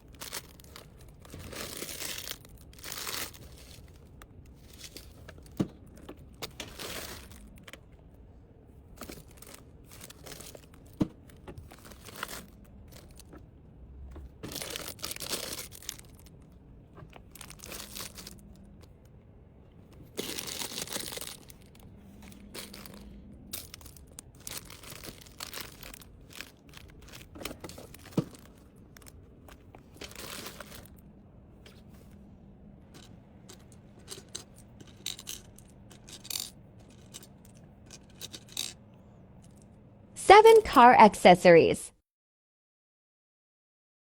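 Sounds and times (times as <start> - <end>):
plastic packaging crinkling: 0.0 - 7.8, 9.0 - 13.3, 14.4 - 16.4, 17.1 - 18.8, 20.0 - 31.0.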